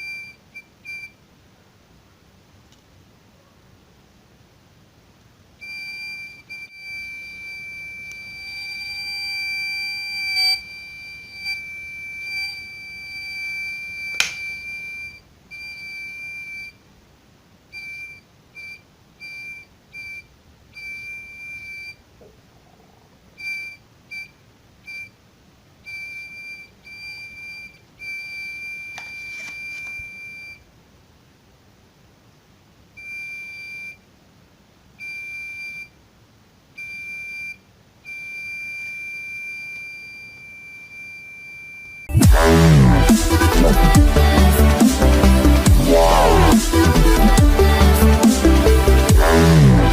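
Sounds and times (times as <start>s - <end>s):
high-pitched alarm buzzer: 5.6s - 16.7s, 36.8s - 49.9s.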